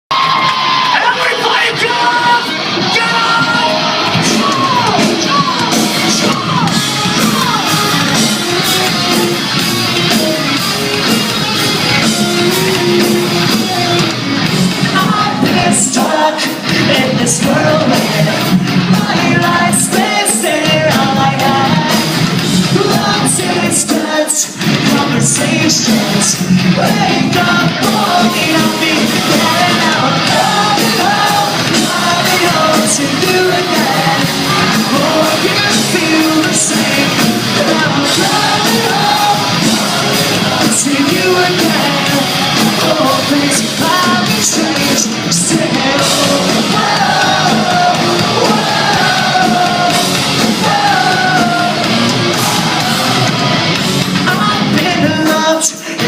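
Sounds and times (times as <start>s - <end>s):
live pop-punk band playing: 0.1s - 56.0s
person singing: 14.8s - 53.5s, 54.2s - 56.0s.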